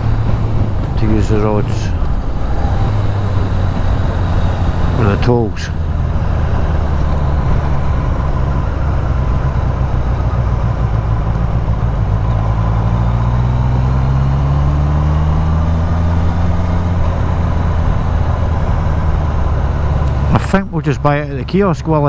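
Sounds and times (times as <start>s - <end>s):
motorcycle engine running: 0.0s - 22.0s
road noise: 0.0s - 22.0s.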